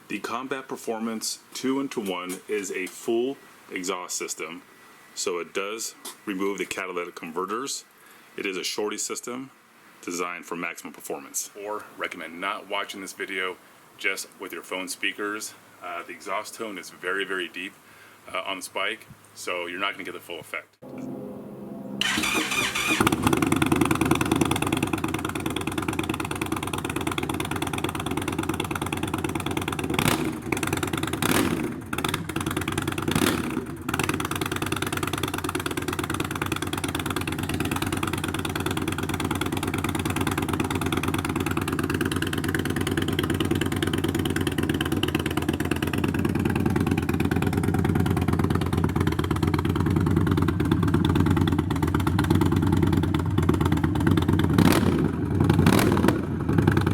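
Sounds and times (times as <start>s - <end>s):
motorcycle engine idling: 22.0s - 56.9s.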